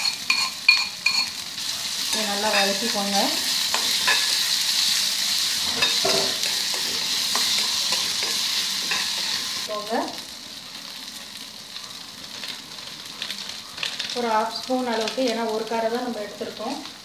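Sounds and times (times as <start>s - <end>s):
metal spoon scraping pan: 0.0s - 1.4s, 2.1s - 4.6s, 5.6s - 9.6s
food sizzling in hot oil: 0.0s - 17.0s.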